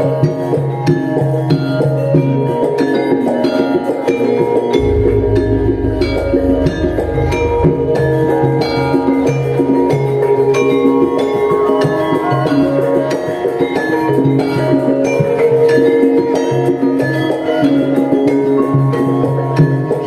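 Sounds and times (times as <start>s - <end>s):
drum strokes: 4.8s - 11.0s.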